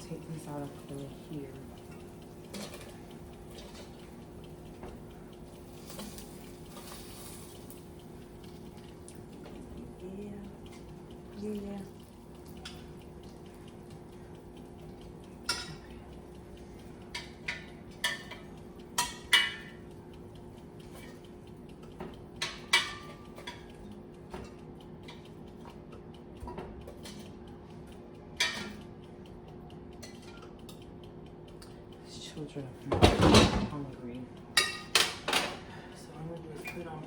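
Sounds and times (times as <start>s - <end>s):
utensils and dishes clinking: 1.8s - 4.0s, 15.4s - 16.0s, 17.1s - 19.8s, 22.4s - 25.8s, 28.4s - 28.8s, 34.6s - 35.6s.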